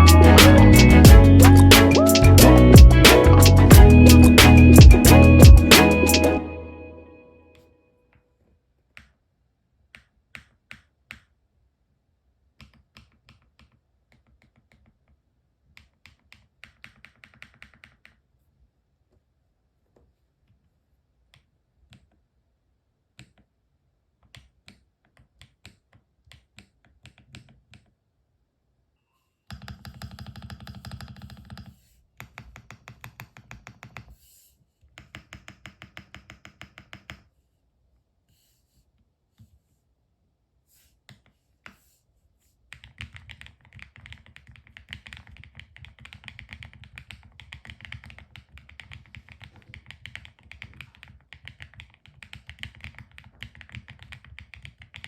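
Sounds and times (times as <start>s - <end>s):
mechanical keyboard typing: 15.8s - 18.2s, 42.8s - 55.0s.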